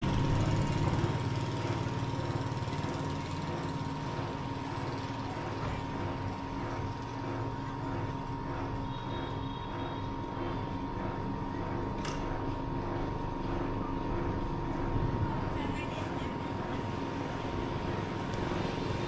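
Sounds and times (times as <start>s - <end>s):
road noise: 15.0s - 19.0s.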